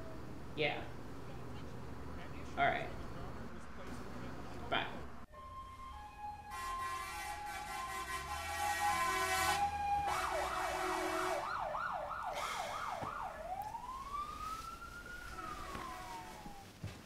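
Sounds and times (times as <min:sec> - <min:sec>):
emergency siren yelping and wailing: 0:05.3 - 0:16.7.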